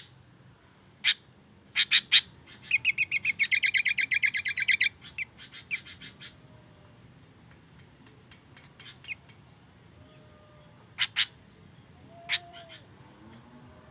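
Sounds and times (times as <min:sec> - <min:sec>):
loud bird calls: 0:01.0 - 0:06.4, 0:10.1 - 0:13.0
bird chirping: 0:01.8 - 0:06.4.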